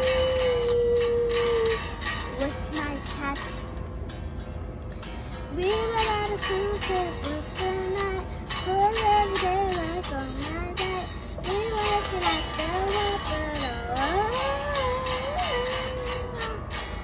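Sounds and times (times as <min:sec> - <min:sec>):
girl singing: 0:00.0 - 0:03.8, 0:05.5 - 0:17.0
strummed guitar: 0:00.0 - 0:17.0.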